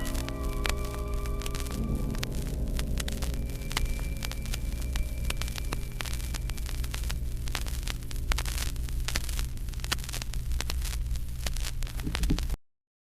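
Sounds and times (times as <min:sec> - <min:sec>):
thin high tone: 0:00.0 - 0:08.6
low hum: 0:00.0 - 0:12.6
record crackles and clicks: 0:00.0 - 0:12.6.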